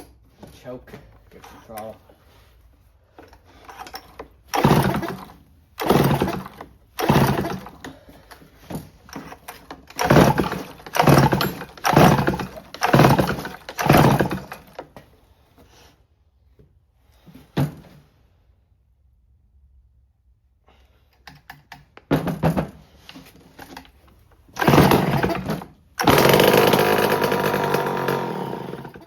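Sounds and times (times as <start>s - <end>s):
chainsaw starter cord pulls: 1.3s - 1.9s, 3.2s - 14.9s, 23.2s - 29.0s
engine turning over: 3.7s - 8.0s, 9.0s - 14.8s, 24.5s - 29.0s.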